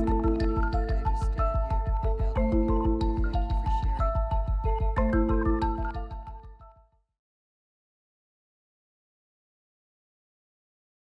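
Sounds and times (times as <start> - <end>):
quick low beat: 0.0 - 6.6
bell-like mallet percussion: 0.0 - 6.8.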